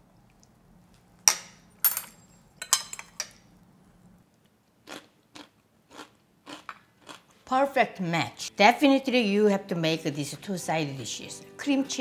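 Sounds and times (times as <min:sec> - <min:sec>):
crunching pickled radish: 0:04.4 - 0:07.4.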